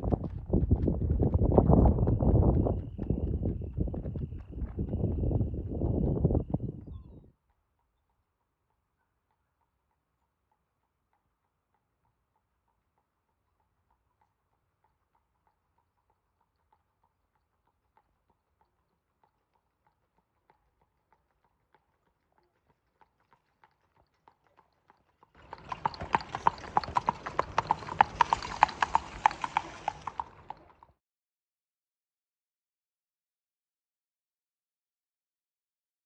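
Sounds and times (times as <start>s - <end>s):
horse hoofbeats: 0.0s - 7.1s, 15.2s - 30.9s.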